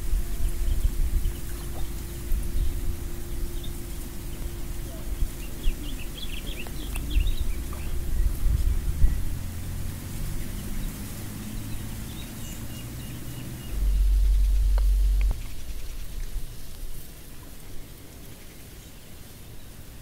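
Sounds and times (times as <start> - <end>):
bird chirping: 0.0 - 9.3, 10.4 - 16.7
steady low rumble: 0.0 - 18.3.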